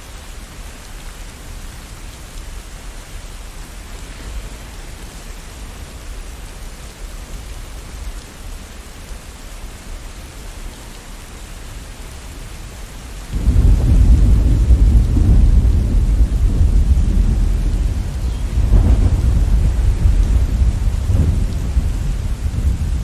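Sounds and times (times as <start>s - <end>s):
rain hiss: 0.0s - 23.0s
deep thunder rumbling: 13.3s - 23.0s.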